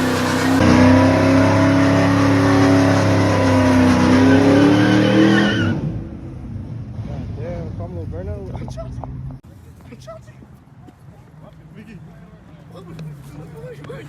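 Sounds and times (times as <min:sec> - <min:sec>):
tyres squealing: 0:00.0 - 0:05.8
car engine at high revs: 0:00.0 - 0:07.9.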